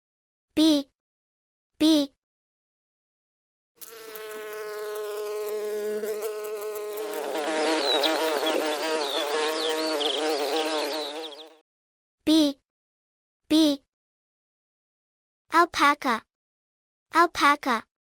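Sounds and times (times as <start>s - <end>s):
bee buzzing: 3.8s - 11.6s.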